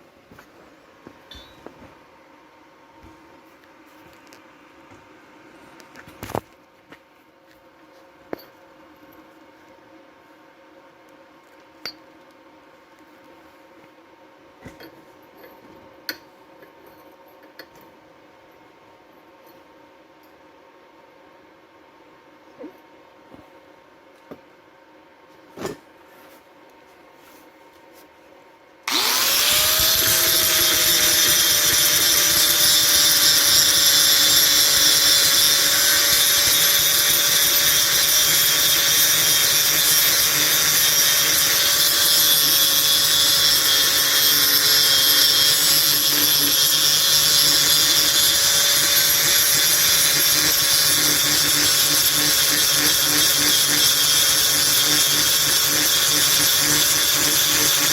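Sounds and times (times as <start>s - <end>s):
electric power tool whining: 28.9s - 57.9s.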